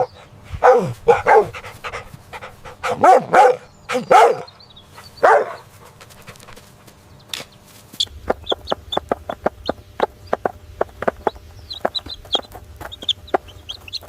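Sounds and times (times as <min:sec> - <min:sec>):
dog barking: 0:00.0 - 0:04.6, 0:05.2 - 0:06.0.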